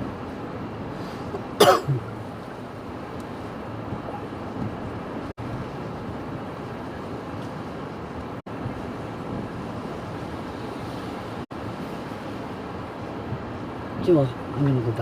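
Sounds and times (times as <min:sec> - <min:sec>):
heavy rain: 0:00.0 - 0:15.0
storm wind: 0:00.0 - 0:15.0
person coughing: 0:01.3 - 0:02.1.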